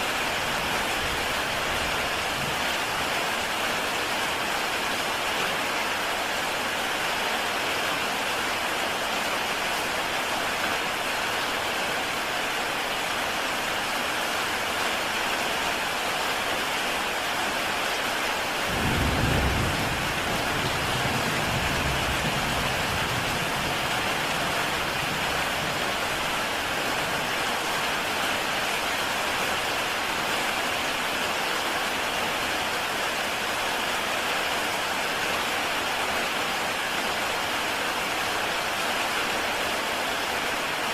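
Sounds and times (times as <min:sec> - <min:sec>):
heavy rain on a tile roof: 0:00.0 - 0:40.9
low rumble of thunder: 0:18.7 - 0:25.9.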